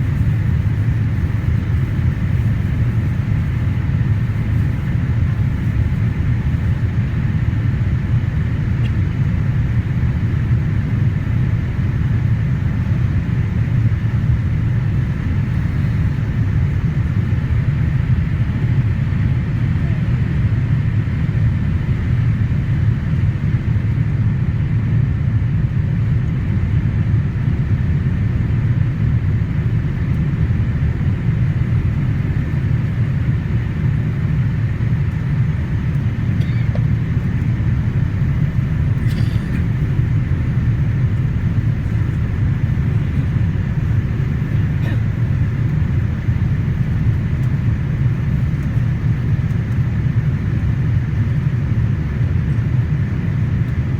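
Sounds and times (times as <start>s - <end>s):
airplane cabin engine rumble: 0.0s - 53.9s.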